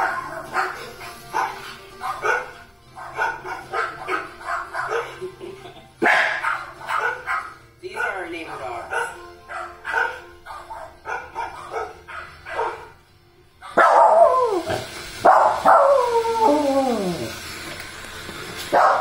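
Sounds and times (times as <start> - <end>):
dogs howling: 0.0 - 5.3, 6.0 - 7.6, 8.5 - 13.0, 13.6 - 17.5
dogs barking: 0.0 - 17.3, 18.7 - 19.0.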